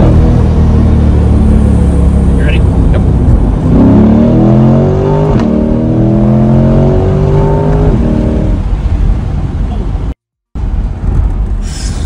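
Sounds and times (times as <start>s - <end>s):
car engine accelerating hard: 0.0s - 9.3s.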